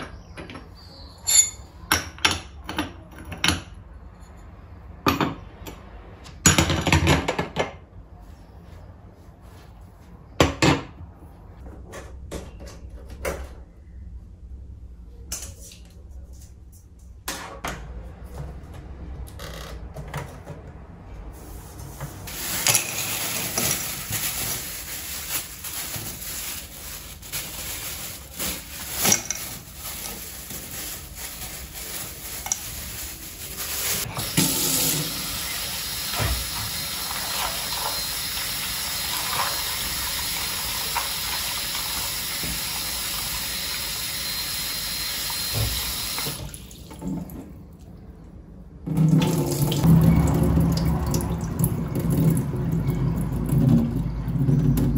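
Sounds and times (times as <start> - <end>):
dishes and utensils clinking: 1.2 - 2.5.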